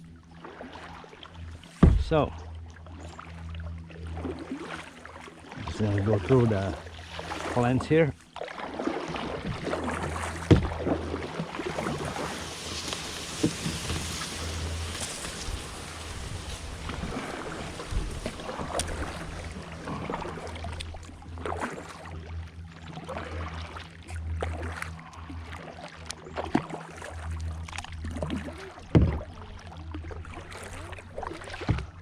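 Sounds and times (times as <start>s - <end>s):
paddle knocks: 1.8s - 2.2s, 10.4s - 11.0s, 31.6s - 32.0s
plants rustling against kayak: 8.3s - 23.2s.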